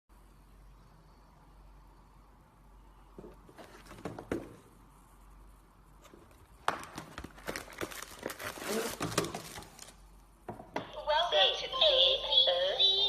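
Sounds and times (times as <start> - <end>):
crinkling handling noise: 6.0 - 10.2.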